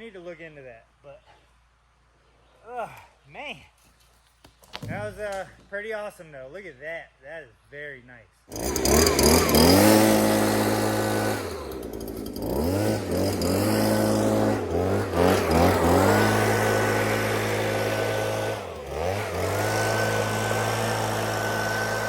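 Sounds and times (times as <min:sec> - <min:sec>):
small petrol engine revving: 0:08.5 - 0:22.0.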